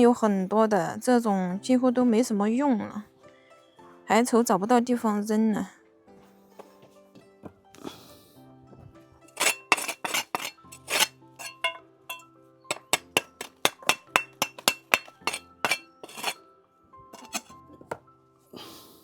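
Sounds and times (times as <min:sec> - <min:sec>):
soft background music: 0:00.0 - 0:19.0
bricks clinking together: 0:09.4 - 0:16.4, 0:17.2 - 0:17.5.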